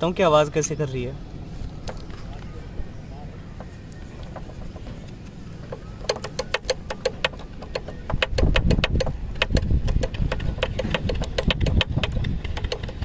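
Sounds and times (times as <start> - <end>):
brake pad rattling: 3.4 - 13.0.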